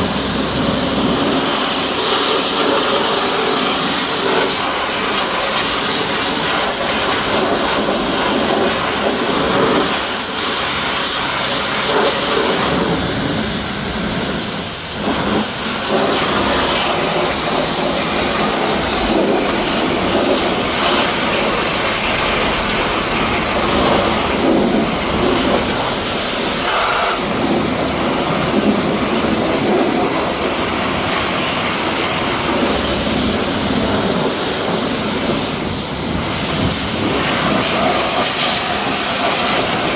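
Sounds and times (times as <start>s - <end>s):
pressure washer spraying water: 0.1s - 39.9s.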